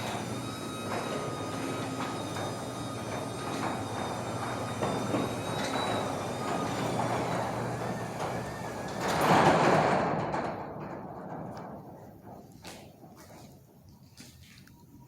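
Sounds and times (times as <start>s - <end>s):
door opener motor hum: 0.0s - 10.5s
garage door rattling: 0.0s - 13.2s.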